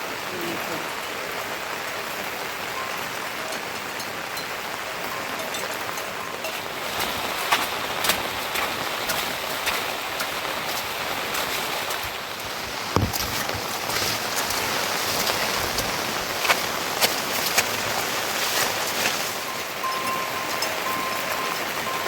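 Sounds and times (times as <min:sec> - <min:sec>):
raindrops ticking on surfaces: 0:00.0 - 0:22.0
steady rain: 0:00.0 - 0:22.0
dull thump: 0:12.9 - 0:13.4.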